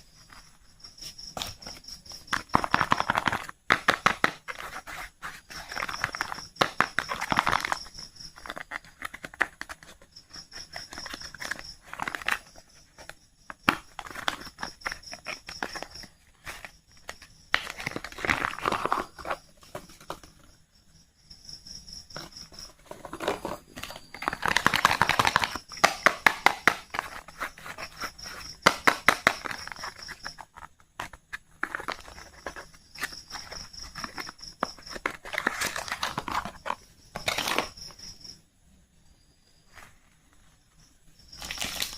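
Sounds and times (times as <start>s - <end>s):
wrapper and carton crinkling: 13.7s - 20.5s, 22.2s - 37.8s, 41.4s - 41.9s.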